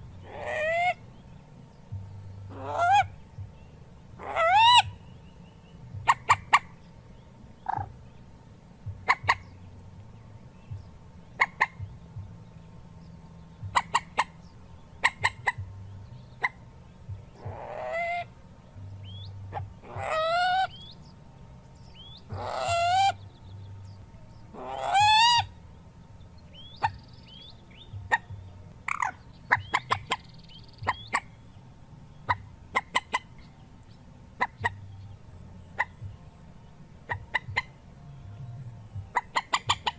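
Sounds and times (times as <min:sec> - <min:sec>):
rail bird calling: 0:00.0 - 0:39.9.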